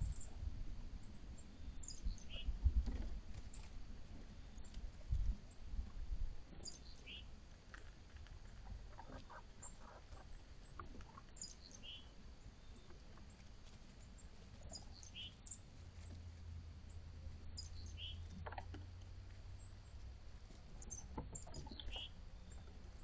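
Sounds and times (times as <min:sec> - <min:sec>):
low steady hum: 0:00.0 - 0:23.0
birds chirping: 0:01.0 - 0:02.6, 0:06.6 - 0:07.4, 0:08.6 - 0:13.4, 0:14.0 - 0:15.7, 0:16.9 - 0:18.6, 0:19.5 - 0:23.0
light ticks and rustles: 0:01.8 - 0:23.0.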